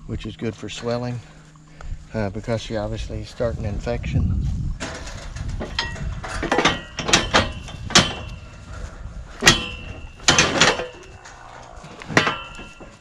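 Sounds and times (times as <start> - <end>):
metal cattle chute clanking: 4.8 - 8.7, 9.3 - 11.4, 12.1 - 13.0.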